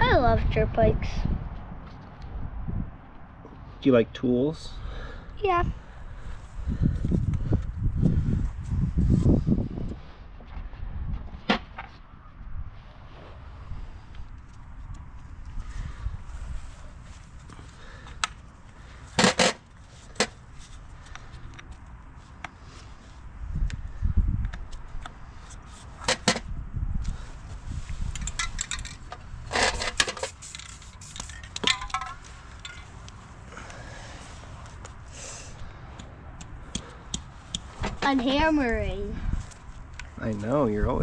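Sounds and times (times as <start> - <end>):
hand tools clanking on metal: 31.2 - 32.9.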